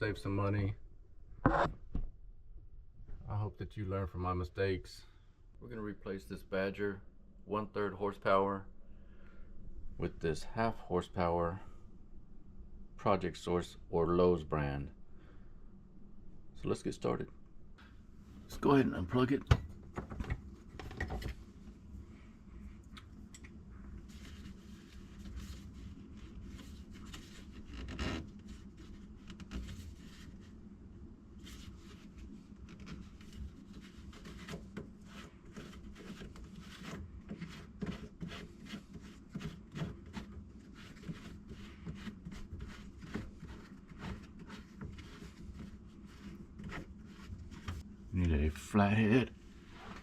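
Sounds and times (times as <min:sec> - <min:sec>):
rubbing and scraping in cabinet: 0:24.0 - 0:30.6, 0:31.4 - 0:47.9.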